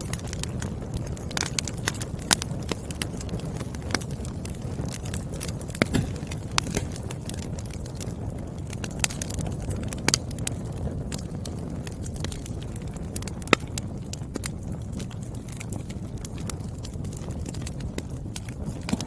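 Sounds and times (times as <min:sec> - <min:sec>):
burning logs popping: 0:00.0 - 0:19.0
wood fire crackling: 0:00.0 - 0:19.0.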